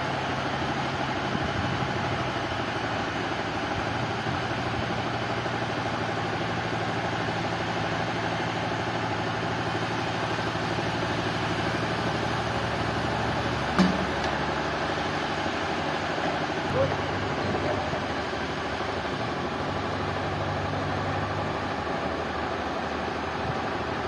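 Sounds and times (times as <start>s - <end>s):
sawmill machinery humming: 8.8s - 23.9s
sharp knock: 13.8s - 14.3s.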